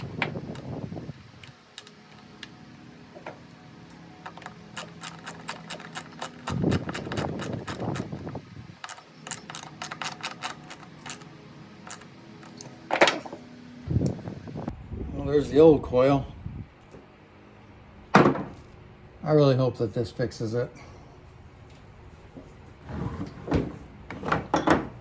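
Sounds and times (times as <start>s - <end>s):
handling rattle: 0.0s - 13.4s
ratchet wrench clicking: 4.3s - 12.6s.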